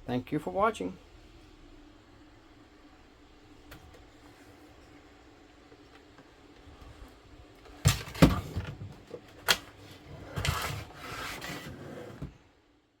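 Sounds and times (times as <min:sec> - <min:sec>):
handling knocks and clunks: 0:07.7 - 0:10.9.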